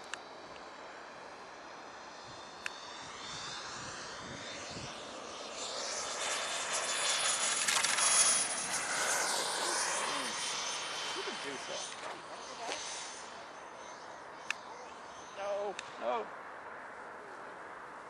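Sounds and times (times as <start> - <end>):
model jet turbine whistling: 0.0 - 16.2
sharp click: 14.4 - 14.7.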